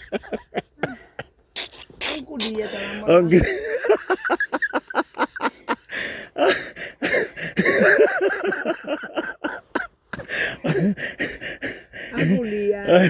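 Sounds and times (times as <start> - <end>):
person breathing rapidly: 0.8 - 3.1, 5.4 - 8.6, 9.4 - 12.7
breathless vocal noises: 0.8 - 3.5, 10.2 - 13.0
person gasping: 2.5 - 3.1, 5.9 - 7.8, 10.2 - 13.0
person coughing: 6.4 - 11.0, 12.2 - 13.0.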